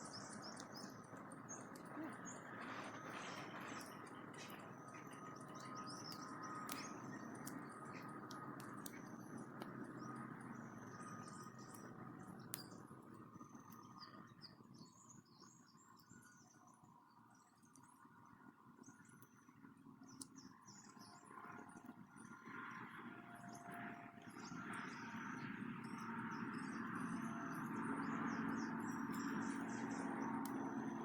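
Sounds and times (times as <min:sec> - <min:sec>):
small birds chirping: 0:00.0 - 0:17.9, 0:24.2 - 0:31.0.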